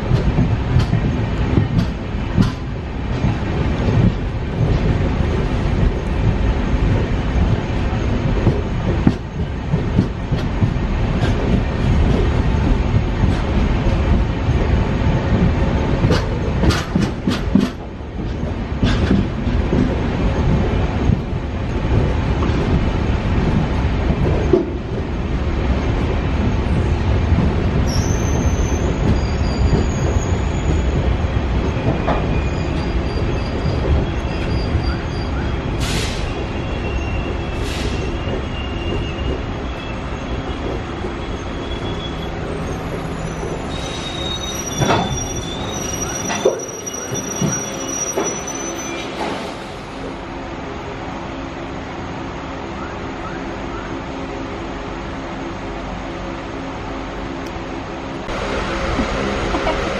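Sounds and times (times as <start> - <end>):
clicks over rail joints: 0.0 - 25.0
train wheels rumbling on track: 0.0 - 59.9.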